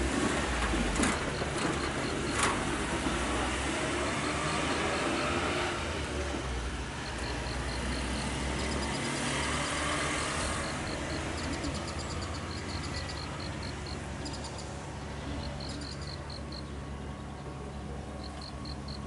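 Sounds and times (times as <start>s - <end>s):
electric train rumble: 0.0s - 19.0s
insects chirping: 1.0s - 2.5s, 3.1s - 6.0s, 6.9s - 16.8s, 18.2s - 19.0s.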